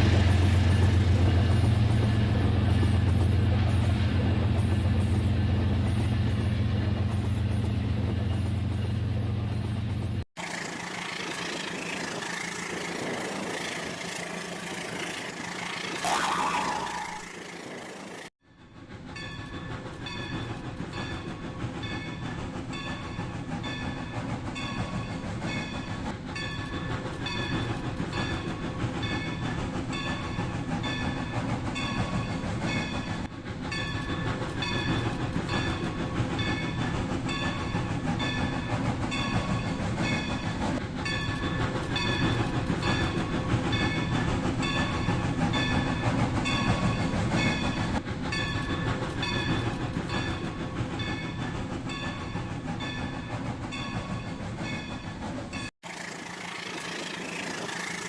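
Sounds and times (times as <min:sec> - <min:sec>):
short high electronic tones: 0:16.0 - 0:17.4.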